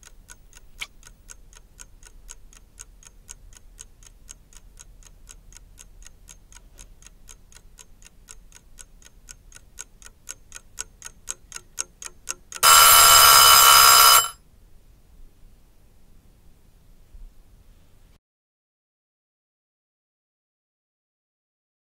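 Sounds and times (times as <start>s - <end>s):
clock ticking: 0.0s - 14.3s
bell-like alarm ringing: 12.6s - 14.4s.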